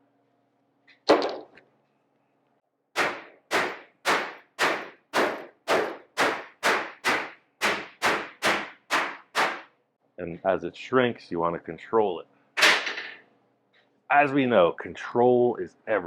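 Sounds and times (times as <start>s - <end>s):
hammer blows on sheet steel: 3.0s - 9.7s.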